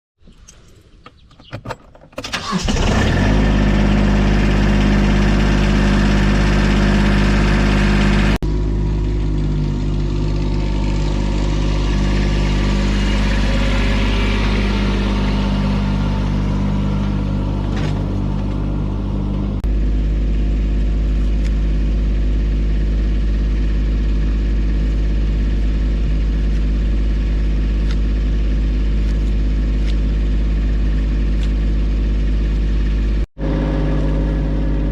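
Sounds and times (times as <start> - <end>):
combustion engine running: 2.2 - 34.9.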